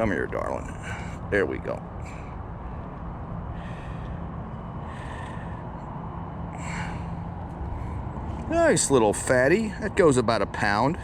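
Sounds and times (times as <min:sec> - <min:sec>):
faint hum: 0:00.5 - 0:08.8
person breathing: 0:00.6 - 0:01.3, 0:02.0 - 0:08.4.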